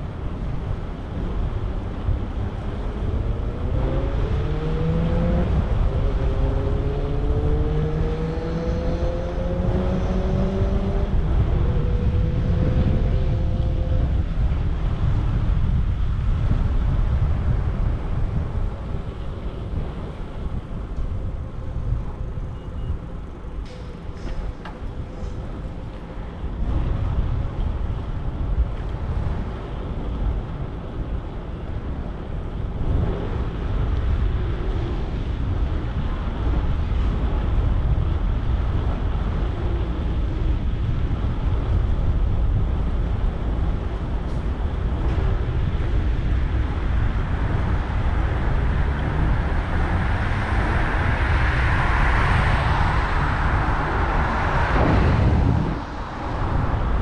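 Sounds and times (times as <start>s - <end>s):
street traffic: 0.0s - 57.0s
wind rushing over microphone: 0.0s - 57.0s
vehicle passing: 47.5s - 57.0s.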